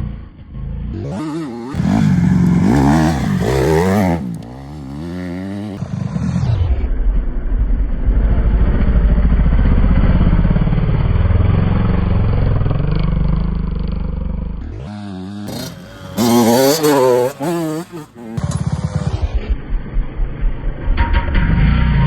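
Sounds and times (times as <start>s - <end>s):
dirt bike engine revving: 0.9s - 6.4s, 10.4s - 19.4s.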